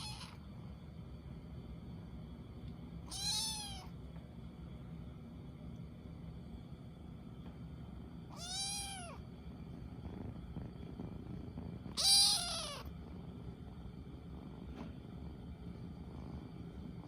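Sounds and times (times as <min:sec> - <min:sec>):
kitten meowing: 0:00.0 - 0:00.4, 0:03.1 - 0:03.9, 0:08.3 - 0:09.2, 0:11.9 - 0:12.9.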